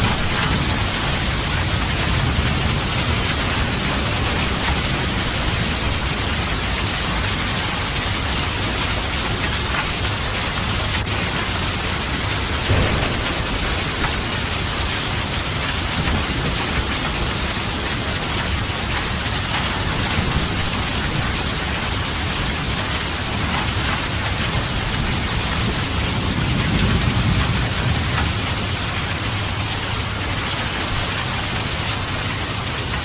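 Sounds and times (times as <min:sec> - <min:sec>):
heavy rain hissing: 0:00.0 - 0:33.0
low thunder rumbling: 0:00.0 - 0:33.0
short thunder thump: 0:12.6 - 0:15.4.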